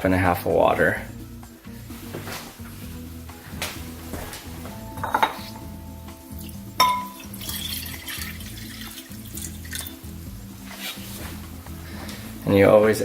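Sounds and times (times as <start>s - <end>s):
background music: 0.0s - 13.0s
glassware clinking: 4.8s - 5.6s, 6.4s - 10.0s
liquid pouring: 6.4s - 10.1s.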